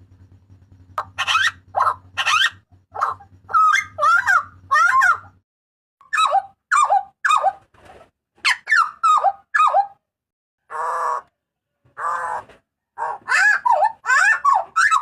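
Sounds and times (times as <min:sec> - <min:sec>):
bird calling with sliding notes: 0:00.0 - 0:05.4, 0:08.5 - 0:09.9, 0:12.0 - 0:15.0
harsh buzzy bird notes: 0:00.0 - 0:05.4.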